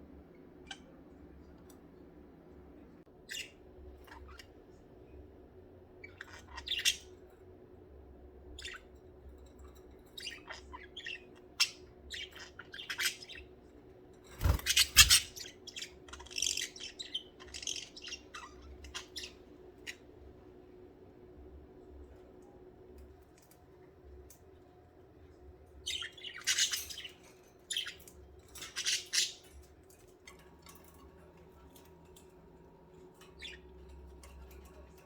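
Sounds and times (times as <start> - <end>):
budgerigars chirping and chattering: 6.0 - 7.2, 10.1 - 13.6, 14.4 - 20.1, 25.8 - 29.8, 33.1 - 35.0.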